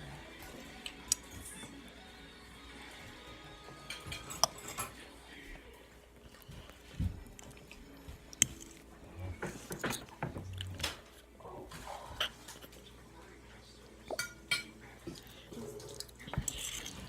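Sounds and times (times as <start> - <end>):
person chewing: 0.7 - 1.6, 6.3 - 11.3, 15.0 - 17.0.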